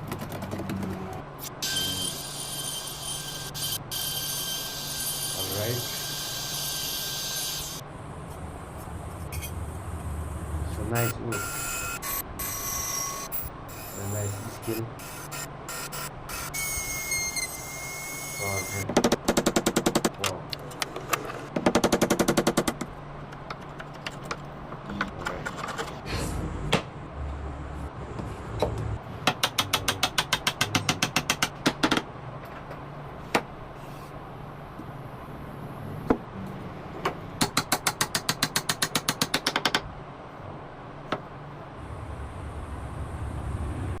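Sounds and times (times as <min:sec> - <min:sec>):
low hum: 0:07.8 - 0:11.3, 0:41.6 - 0:44.0.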